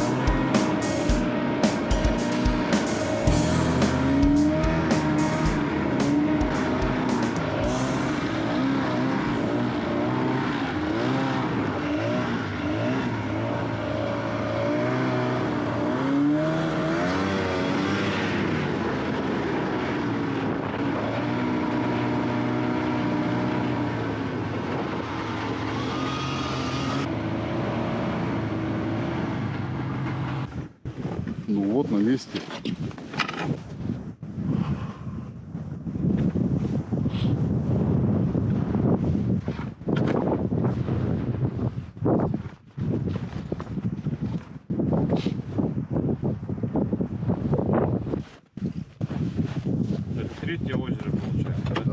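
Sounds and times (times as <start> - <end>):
snowmobile engine running: 0.0 - 25.8.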